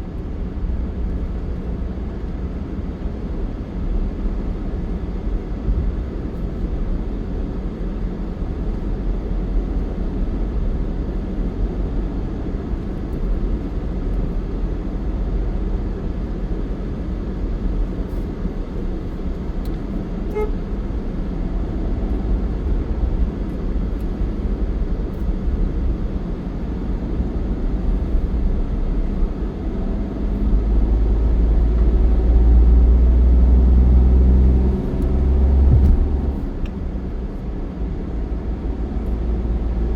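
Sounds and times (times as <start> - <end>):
vehicle engine and road rumble: 0.0 - 39.9
short beep: 20.3 - 20.6.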